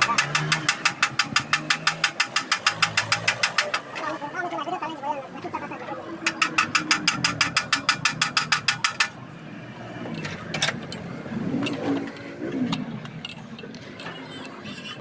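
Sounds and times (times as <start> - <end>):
ratchet wrench clicking rapidly: 0.0 - 4.1, 6.3 - 9.2
tool knocks and clicks: 0.0 - 4.2, 6.3 - 9.3.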